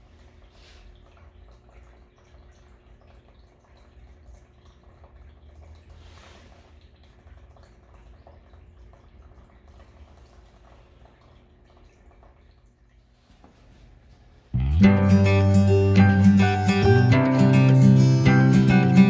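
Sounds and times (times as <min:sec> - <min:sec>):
water dripping and trickling: 0:00.0 - 0:14.0
low steady hum: 0:00.0 - 0:19.0.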